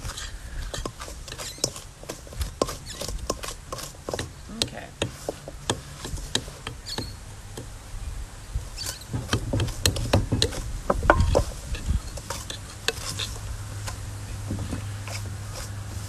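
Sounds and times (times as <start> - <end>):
metal spoon scraping in bowl: 0.0 - 4.4, 8.8 - 14.0, 14.7 - 16.0
wind rumble on microphone: 7.2 - 16.0.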